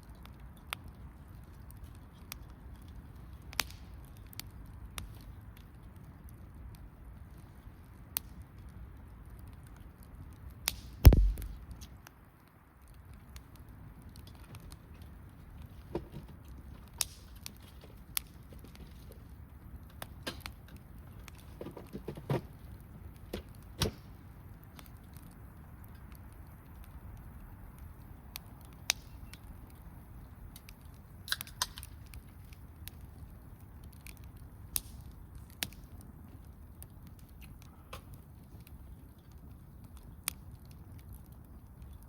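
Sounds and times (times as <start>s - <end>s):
campfire crackling: 0.0s - 42.0s
pops and snaps of burning wood: 0.0s - 42.0s
loud thump with low rumble: 11.0s - 11.6s.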